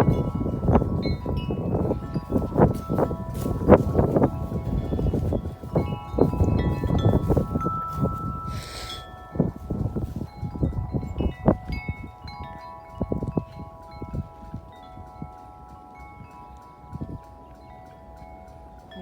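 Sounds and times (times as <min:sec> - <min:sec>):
tubular wind chime ringing: 0:00.0 - 0:19.0
wind rumble on microphone: 0:00.0 - 0:19.0.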